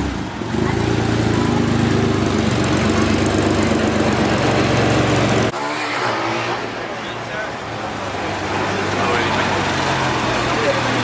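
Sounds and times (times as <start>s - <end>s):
car engine idling: 0.0s - 5.5s
street traffic noise: 0.0s - 11.0s.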